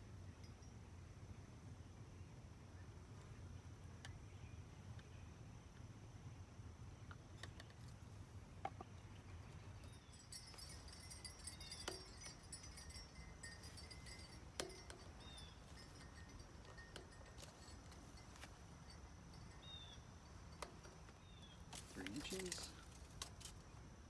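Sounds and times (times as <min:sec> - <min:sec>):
faint high chirping: 0:09.0 - 0:22.9.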